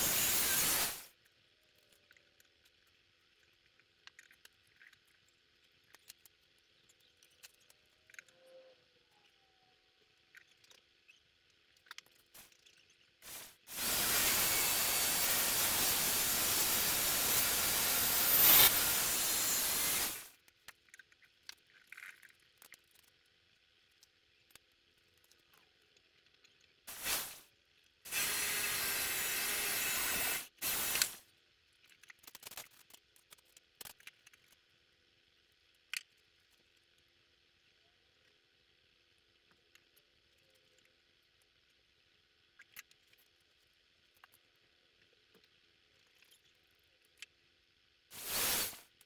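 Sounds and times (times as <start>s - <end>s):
aerosol can spraying: 0.0s - 1.1s, 13.2s - 20.3s, 26.9s - 27.4s, 28.1s - 31.2s, 48.1s - 48.8s.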